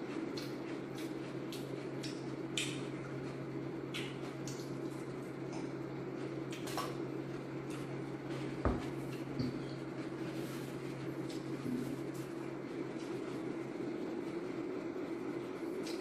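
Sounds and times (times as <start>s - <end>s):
steady low hum: 0.0s - 16.0s
wet mouth smacks and chewing: 0.2s - 2.9s, 3.9s - 5.7s.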